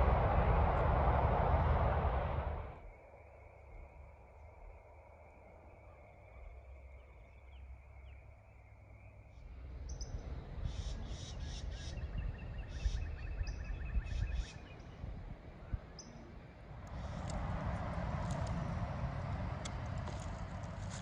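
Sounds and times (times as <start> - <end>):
low rumble: 0.0 - 2.8
birds chirping: 5.7 - 21.0
bird trill: 9.8 - 14.8.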